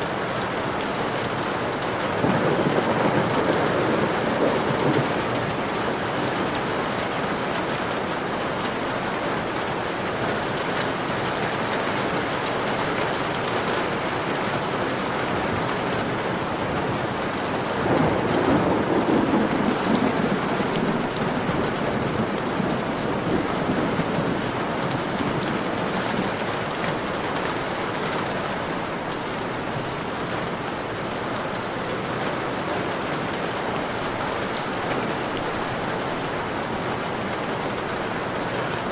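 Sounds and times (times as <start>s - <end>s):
heavy rain on a window: 0.0s - 38.9s
thunder rumbling: 2.1s - 7.4s, 15.3s - 31.2s.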